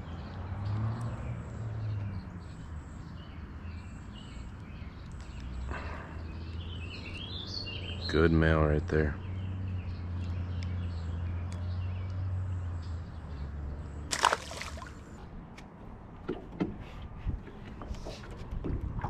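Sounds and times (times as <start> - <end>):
sharp water splash: 14.1 - 15.2
water sloshing: 14.1 - 15.3.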